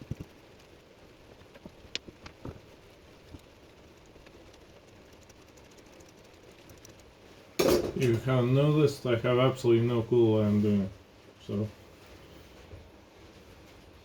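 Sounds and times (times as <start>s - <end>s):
low room hiss: 0.0s - 14.0s
faint metal clicks and taps: 1.5s - 7.2s.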